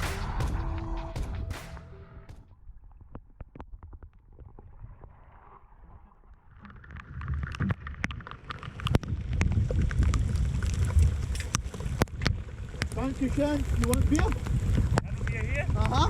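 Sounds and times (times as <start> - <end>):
wind on microphone: 8.8 - 16.0.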